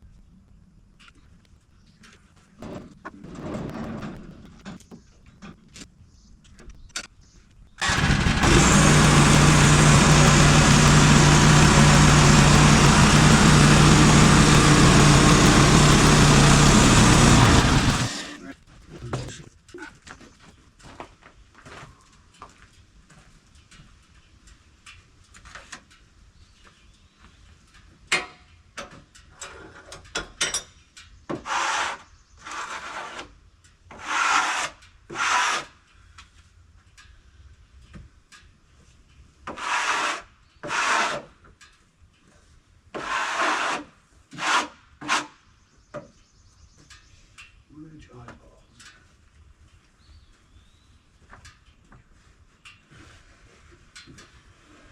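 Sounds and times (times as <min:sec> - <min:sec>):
rough scraping strokes: 0:07.8 - 0:18.4.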